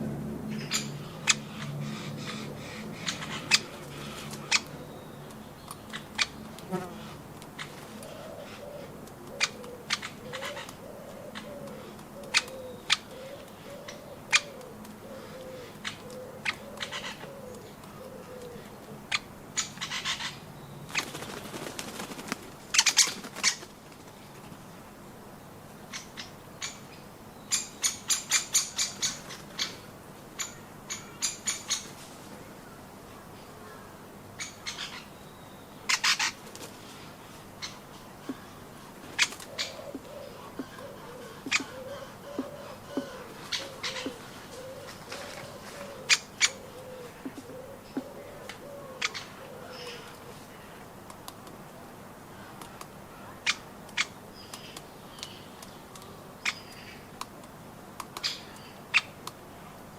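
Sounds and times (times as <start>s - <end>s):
woodpeckers tapping on nuts: 11.5s - 19.9s, 39.2s - 44.3s, 47.2s - 48.6s, 53.8s - 59.4s.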